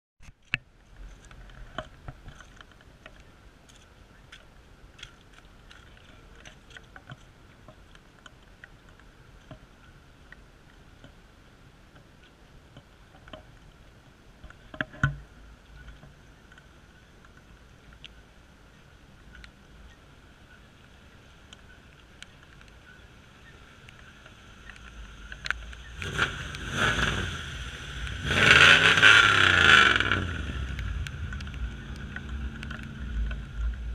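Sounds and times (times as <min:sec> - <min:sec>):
faint steady background noise: 0:00.2 - 0:33.9
raindrops tapping: 0:23.8 - 0:33.9.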